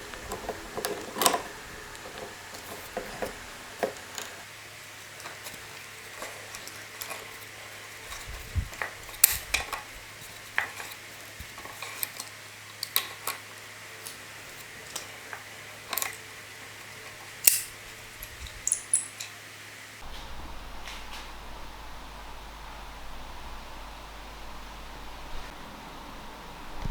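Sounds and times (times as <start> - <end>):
faint steady hum: 0.0 - 26.9
hand tools clinking on metal: 17.4 - 19.4.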